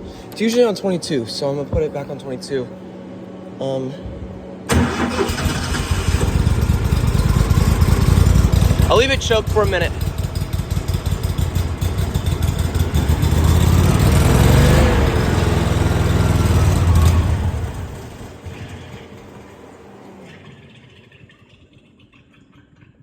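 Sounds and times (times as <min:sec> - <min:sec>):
small gasoline engine running: 0:04.7 - 0:20.9.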